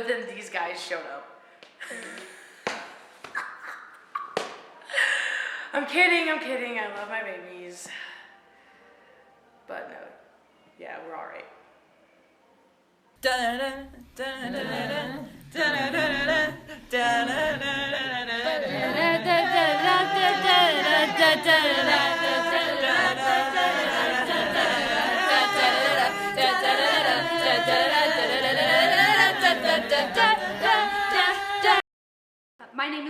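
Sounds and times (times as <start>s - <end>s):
a cappella group singing: 13.2s - 31.8s.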